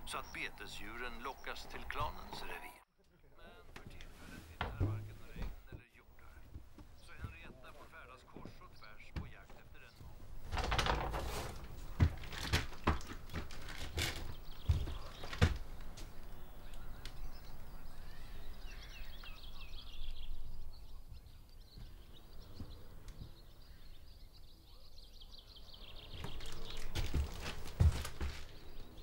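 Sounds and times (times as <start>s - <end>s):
small birds chirping: 0.0s - 29.0s
soft knocks: 3.8s - 9.6s.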